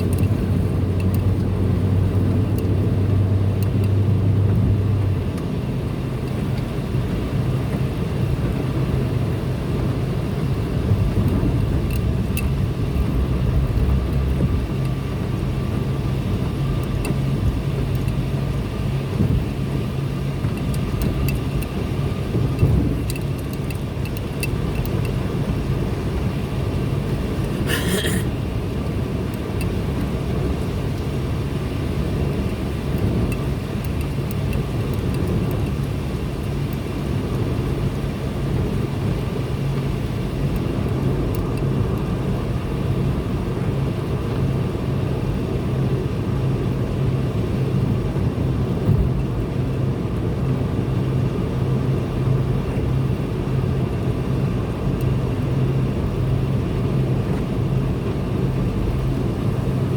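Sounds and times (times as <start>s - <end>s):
tyre and road rumble: 0.0s - 44.2s
car engine drone: 0.0s - 59.9s.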